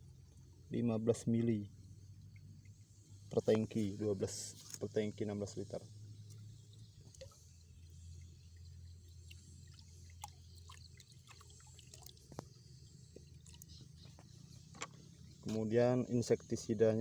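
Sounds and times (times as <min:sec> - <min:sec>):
low steady hum: 0:00.0 - 0:17.0
liquid dripping: 0:06.0 - 0:15.7.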